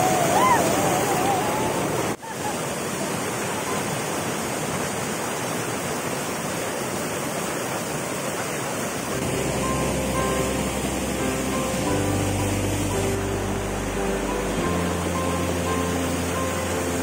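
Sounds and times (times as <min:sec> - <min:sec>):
water rushing over rocks: 0:00.0 - 0:17.0
background music: 0:09.1 - 0:17.0.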